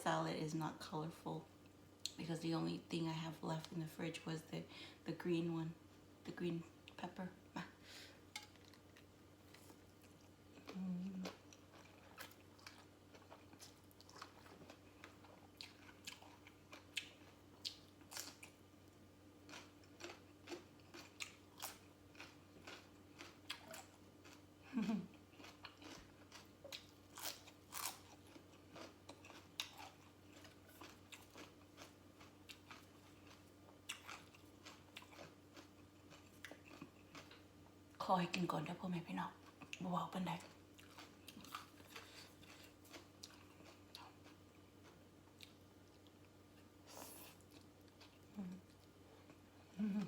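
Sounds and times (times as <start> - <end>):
chewing and crunching: 8.3 - 18.6, 19.4 - 37.8, 39.4 - 50.0.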